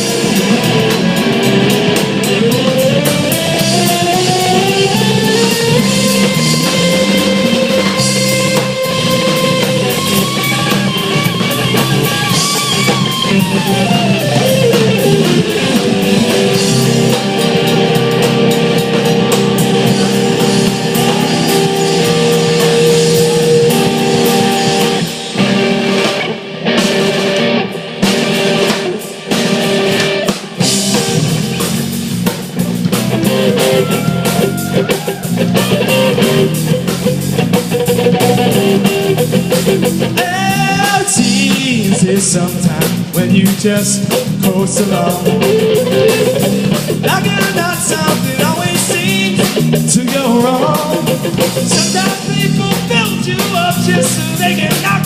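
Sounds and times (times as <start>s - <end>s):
guitar note sliding down: 0.0s - 27.7s
rock band playing: 0.0s - 55.0s.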